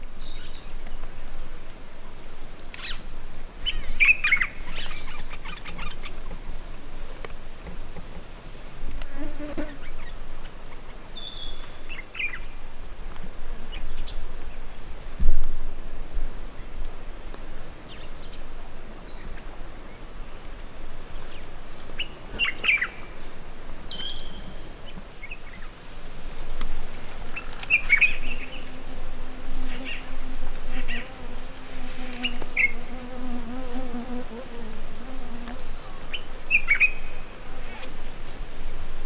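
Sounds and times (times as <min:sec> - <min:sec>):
flying insect buzzing: 0:09.0 - 0:10.1, 0:25.8 - 0:36.4.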